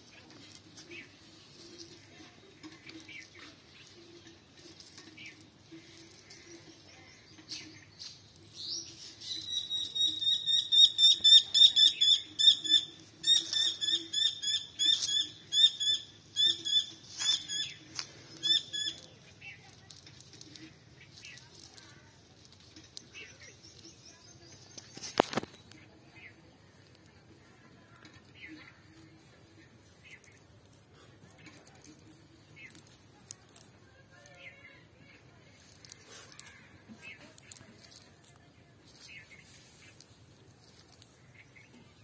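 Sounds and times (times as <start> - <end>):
bird chirping rapidly: 8.6 - 17.8.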